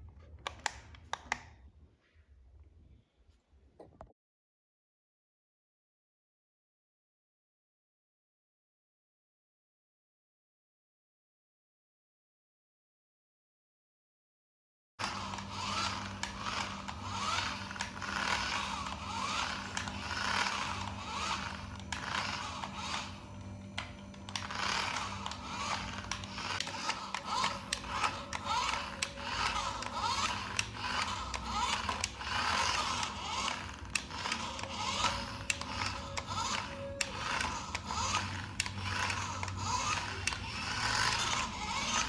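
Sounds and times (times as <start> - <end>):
plastic gears clicking and rattling: 15.0 - 42.0
toy car motor whirring: 15.0 - 42.0.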